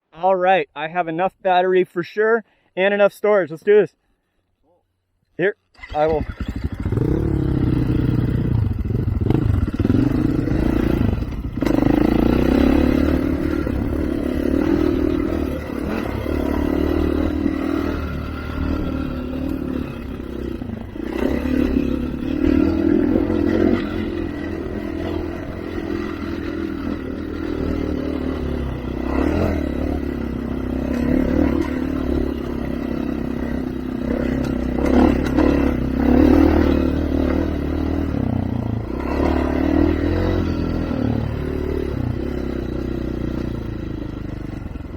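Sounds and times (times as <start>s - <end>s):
off-road vehicle engine revving: 5.8s - 44.9s
clattering and scraping on trail: 29.1s - 33.5s, 34.1s - 37.5s.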